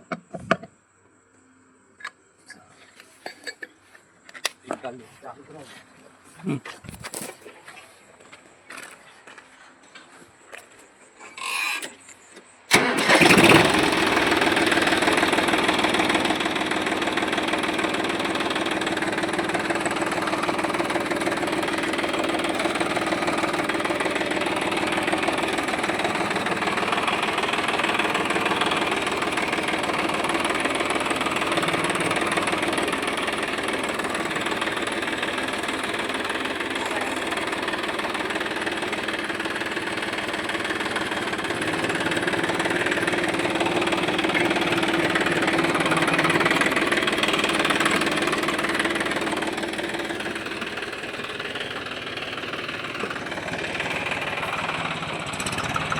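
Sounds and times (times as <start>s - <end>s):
tractor diesel engine starting: 12.7s - 55.9s
tractor engine idling: 12.7s - 55.9s.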